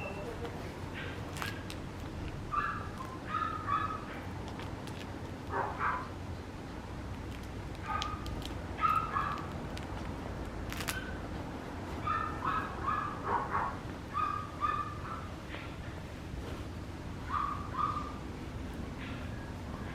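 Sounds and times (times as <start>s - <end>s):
puppy yipping: 2.5s - 4.2s, 7.9s - 9.5s, 10.9s - 11.2s, 12.0s - 15.3s, 17.3s - 18.2s.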